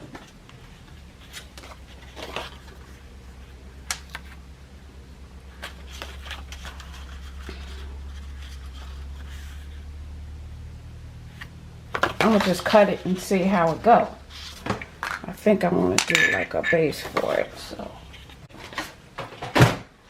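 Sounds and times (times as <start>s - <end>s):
paper rustling: 0.0s - 4.4s, 5.4s - 9.9s, 11.3s - 15.2s
low steady hum: 0.0s - 20.0s.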